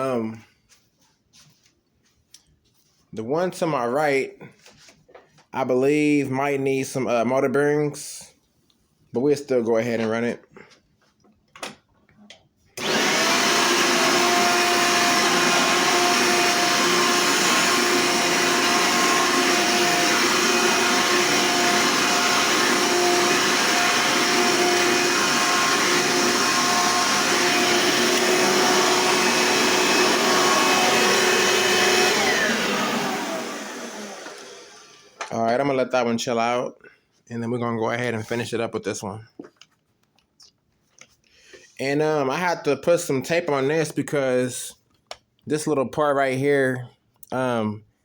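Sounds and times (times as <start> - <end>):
vacuum cleaner motor whining: 12.8 - 35.3.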